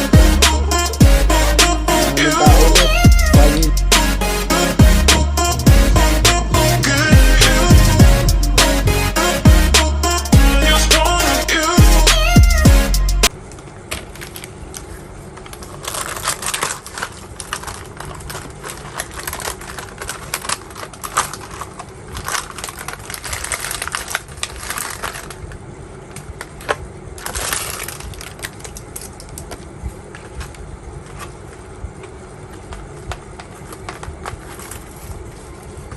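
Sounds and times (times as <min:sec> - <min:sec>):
low background hum: 0:00.0 - 0:35.9
eating and food handling: 0:13.4 - 0:35.9.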